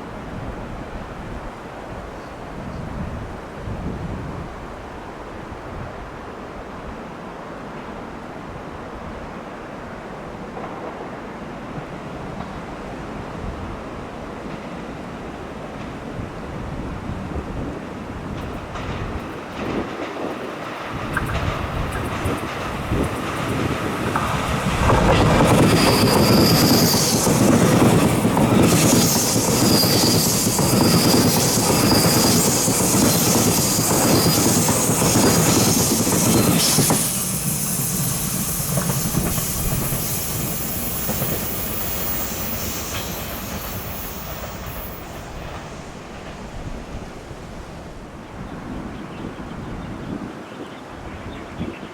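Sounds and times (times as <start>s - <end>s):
train wheels clattering on rails: 17.8s - 47.0s
high-pitched wheel squeal: 25.4s - 45.8s.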